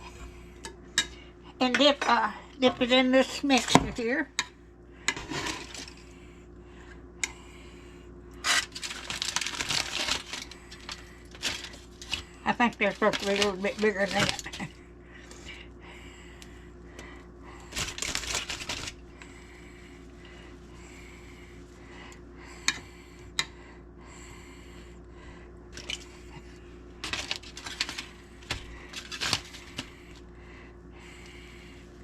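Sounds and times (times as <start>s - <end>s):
steady low hum: 0.0s - 32.0s
hands handling dough: 8.5s - 14.7s, 27.0s - 30.2s.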